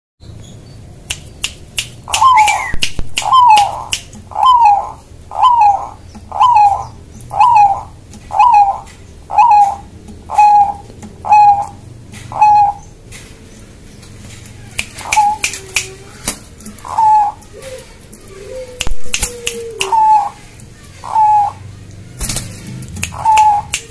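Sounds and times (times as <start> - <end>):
sharp clicks between coos: 1.1 - 4.6, 14.3 - 20.7, 21.9 - 23.9
dove cooing: 2.1 - 13.0, 14.9 - 23.9.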